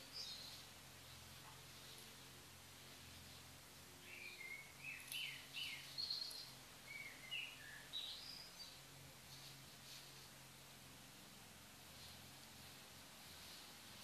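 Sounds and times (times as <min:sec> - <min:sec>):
songbird singing: 0:00.0 - 0:10.9.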